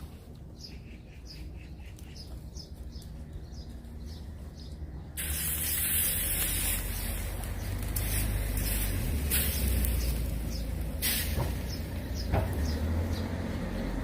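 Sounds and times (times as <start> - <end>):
small bird chirping: 0.6 - 13.4
loud steady hiss: 5.2 - 12.4.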